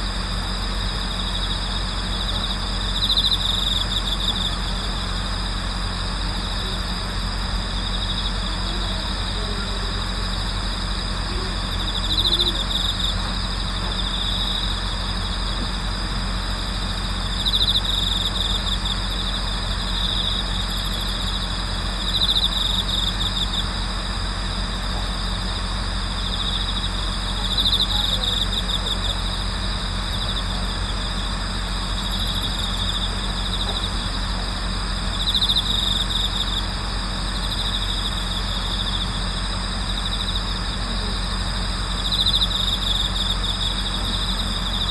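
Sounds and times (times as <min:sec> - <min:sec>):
cricket trill: 0:00.0 - 0:44.9
crickets chirping: 0:00.0 - 0:44.9.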